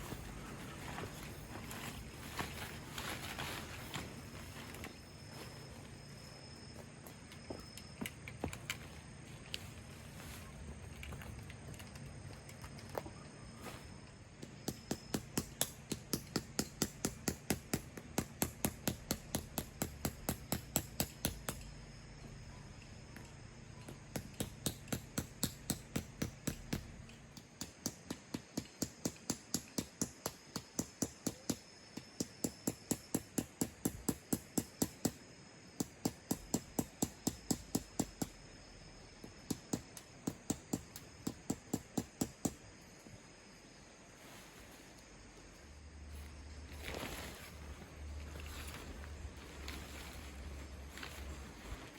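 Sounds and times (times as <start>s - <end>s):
low steady hum: 0.0s - 16.6s
rapid hammer strikes: 14.6s - 21.6s, 24.1s - 26.8s.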